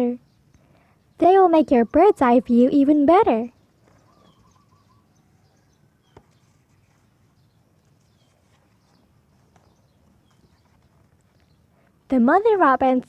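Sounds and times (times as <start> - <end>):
faint bird chirps: 0.0 - 12.3.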